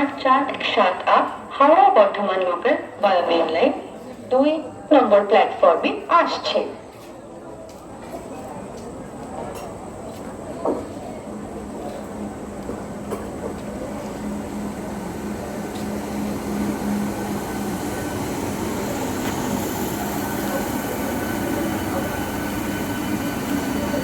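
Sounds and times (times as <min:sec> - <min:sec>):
electric train approaching: 0:08.6 - 0:24.0.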